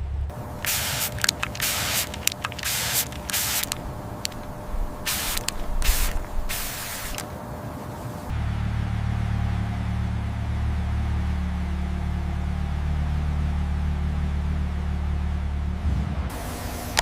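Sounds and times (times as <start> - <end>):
faint steady hum: 0.0 - 17.0
spraying hiss: 0.3 - 8.3, 16.3 - 17.0.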